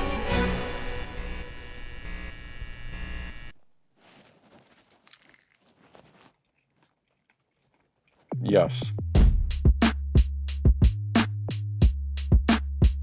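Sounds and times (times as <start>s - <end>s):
theme music: 0.0s - 1.2s
man biting and chewing crunchily: 4.0s - 8.4s.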